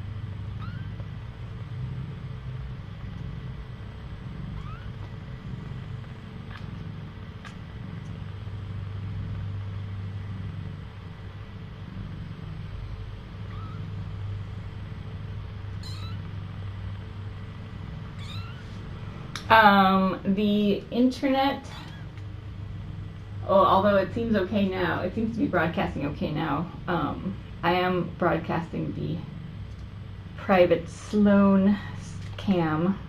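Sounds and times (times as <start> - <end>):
low steady hum: 0.0 - 33.0
kittens mewing: 0.5 - 1.0, 4.4 - 5.6, 13.4 - 14.1, 15.8 - 16.3, 18.1 - 18.8.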